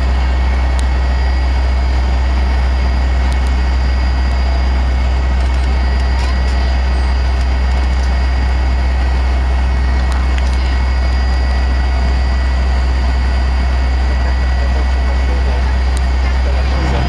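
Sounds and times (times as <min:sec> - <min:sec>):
jet engine cabin drone: 0:00.0 - 0:17.0
thin steady engine whines: 0:00.0 - 0:17.0.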